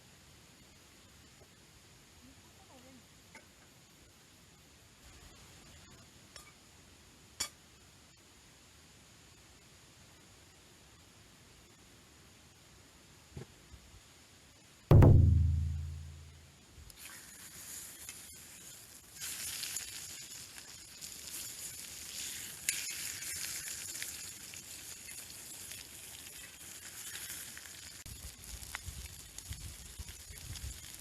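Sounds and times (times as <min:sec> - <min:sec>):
loud low tone: 0:14.9 - 0:16.3
chicken sizzling on a grill: 0:16.9 - 0:31.0.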